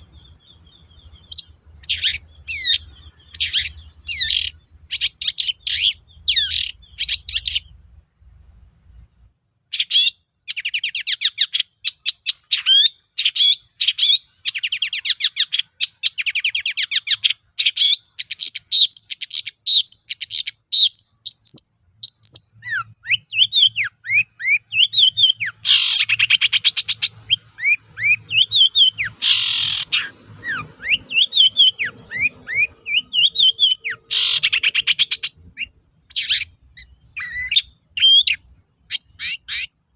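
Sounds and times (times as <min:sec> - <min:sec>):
shrike chattering trills and whistles: 0:00.0 - 0:07.8, 0:09.7 - 0:39.9
harsh rasping bird calls: 0:00.0 - 0:09.1, 0:09.7 - 0:39.9.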